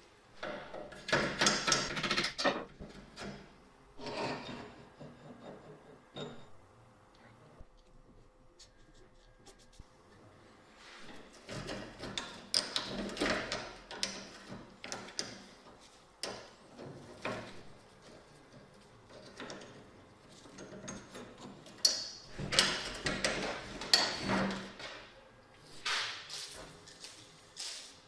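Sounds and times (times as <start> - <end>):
scraping and rubbing strokes: 7.8 - 9.9.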